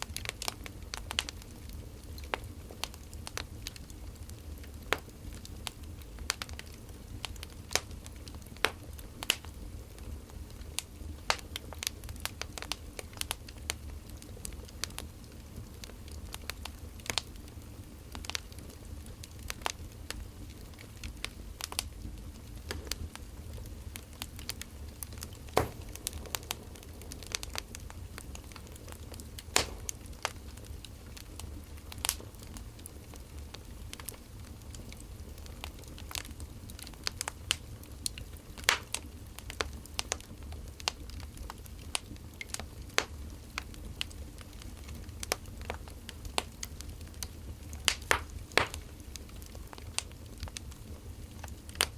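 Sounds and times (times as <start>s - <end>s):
firewood crackling and popping: 0.0s - 51.9s
low steady rumble: 20.0s - 34.6s.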